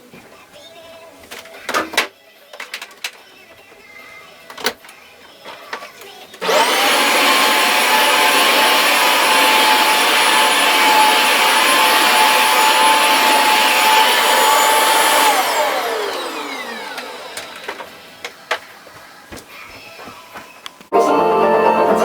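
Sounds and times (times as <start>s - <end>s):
vacuum cleaner motor whining: 5.5s - 18.9s.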